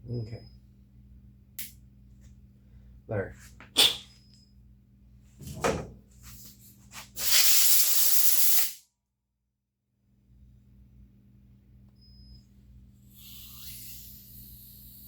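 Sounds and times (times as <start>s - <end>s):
pressurised hiss: 13.1s - 15.0s.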